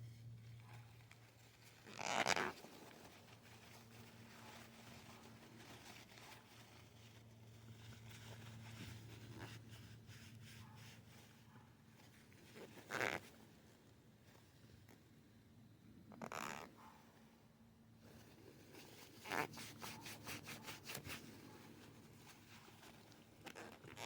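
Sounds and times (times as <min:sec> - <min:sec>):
steady low hum: 0:00.0 - 0:01.9.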